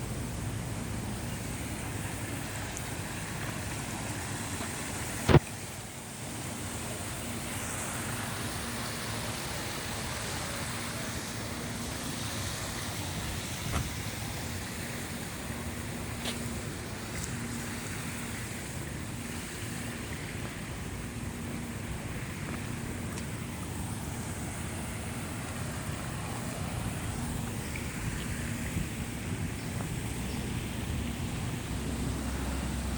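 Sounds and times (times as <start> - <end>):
steady outdoor hiss: 0.0 - 32.9.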